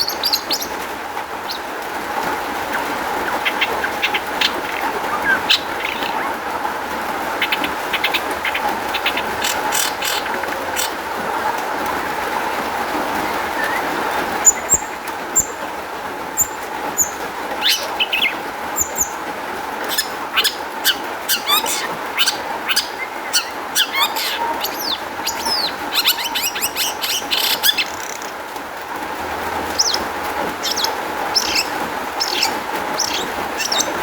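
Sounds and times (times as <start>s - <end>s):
bird singing scratchy chirps: 0.0s - 0.8s, 2.6s - 6.4s, 7.3s - 11.0s, 13.2s - 15.6s, 16.3s - 19.2s, 19.8s - 28.4s, 29.6s - 34.0s.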